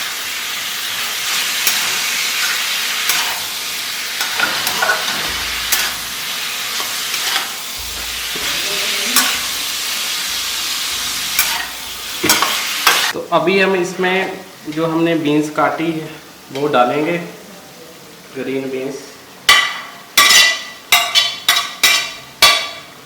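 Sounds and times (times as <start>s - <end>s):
chicken sizzling in hot oil: 0.0s - 13.2s
spatula clacking against pan: 19.5s - 22.9s.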